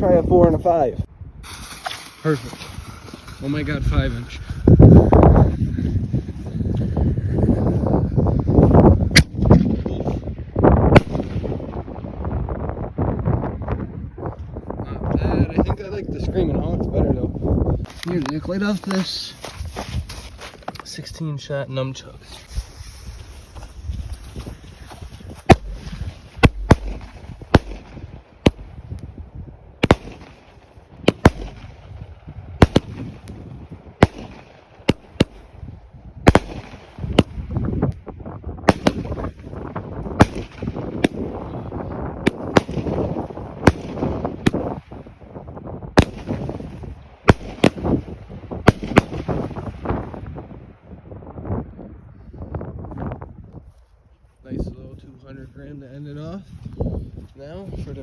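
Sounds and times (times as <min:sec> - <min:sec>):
firework crackle and hiss: 0:01.4 - 0:04.8, 0:22.3 - 0:29.1, 0:29.8 - 0:32.0, 0:32.6 - 0:35.6, 0:36.2 - 0:37.5, 0:46.0 - 0:50.0
firework cake bangs: 0:25.4 - 0:28.9, 0:29.8 - 0:31.8, 0:32.6 - 0:33.2, 0:34.0 - 0:35.5, 0:36.3 - 0:37.4, 0:38.7 - 0:39.4, 0:40.2 - 0:41.4, 0:42.2 - 0:44.9, 0:47.3 - 0:49.8.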